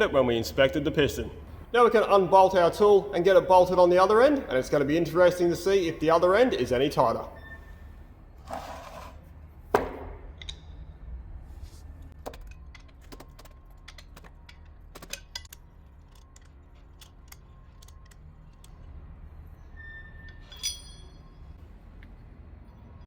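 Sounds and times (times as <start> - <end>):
low workshop hum: 0.0 - 23.0
metal tools clicking and clinking: 12.4 - 19.0, 19.8 - 21.6
loud metal clink: 20.2 - 21.6.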